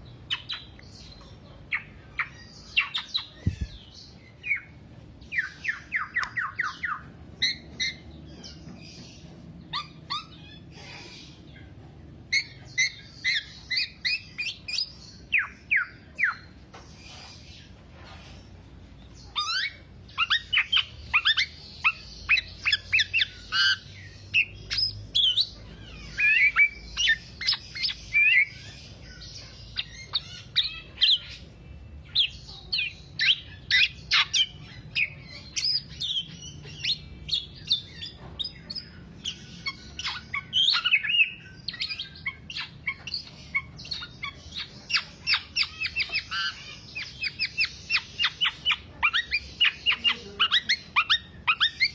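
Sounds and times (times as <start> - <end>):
bird singing fast chatter: 19.2 - 51.9.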